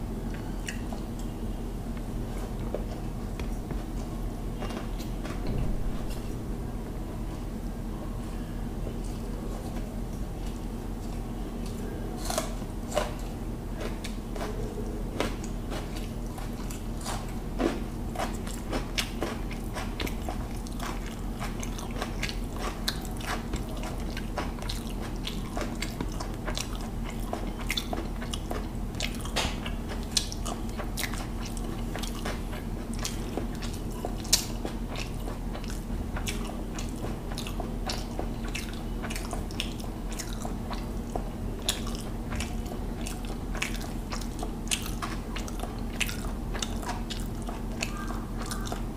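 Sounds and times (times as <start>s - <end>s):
low hum: 0.0s - 17.0s
chewing and wet mouth sounds: 0.2s - 6.4s, 7.3s - 48.9s.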